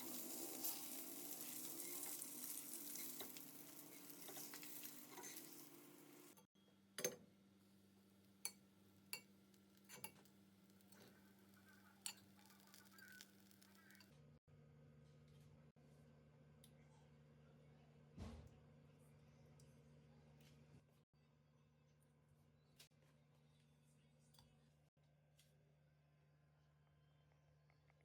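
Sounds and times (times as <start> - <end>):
food sizzling in frying pan: 0.0 - 6.4, 10.8 - 14.0
utensils clinking: 0.0 - 6.4.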